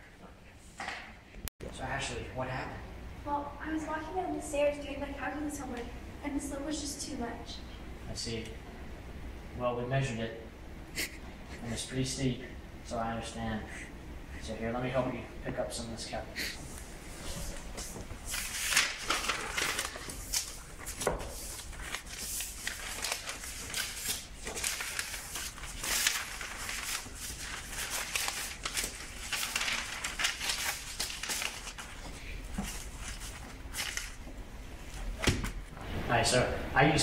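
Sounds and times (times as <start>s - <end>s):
paper rustling and shuffling: 16.6s - 36.1s.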